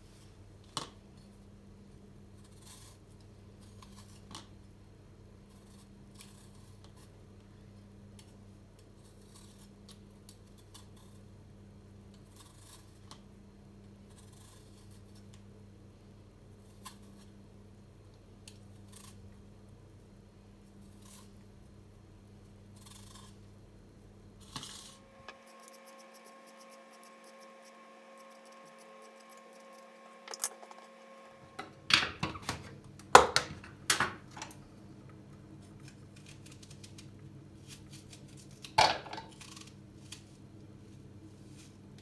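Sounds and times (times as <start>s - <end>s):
steady low hum: 13.2s - 42.0s
scraping or snipping strokes: 24.4s - 31.3s.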